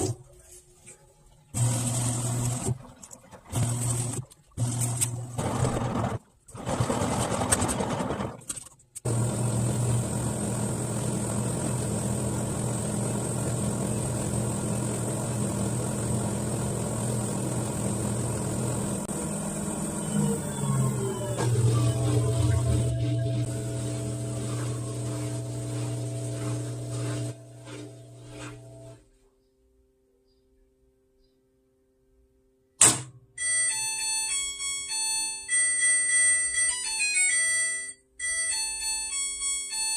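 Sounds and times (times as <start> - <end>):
washing machine motor hum and whine: 1.4 - 6.2, 9.1 - 29.0.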